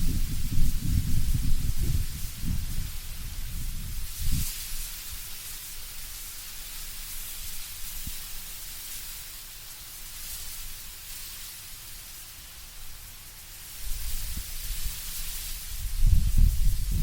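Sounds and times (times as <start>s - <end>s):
low wind rumble: 0.0s - 5.2s, 15.7s - 17.0s
leaves rustling in wind: 0.0s - 17.0s.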